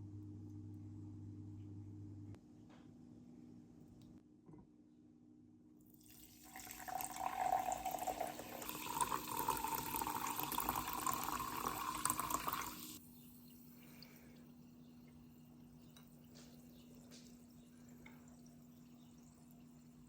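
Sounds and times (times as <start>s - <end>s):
tap water running into sink: 6.0s - 13.0s, 16.3s - 20.0s.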